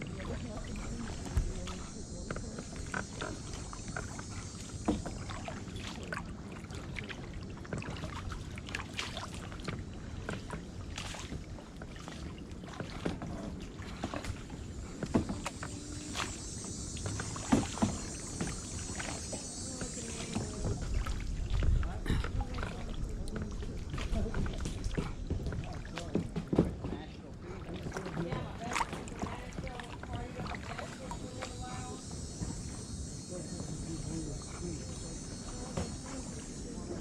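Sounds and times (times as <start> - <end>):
paddle splashing in water: 0.0 - 37.0
paddle knocks: 17.0 - 31.6.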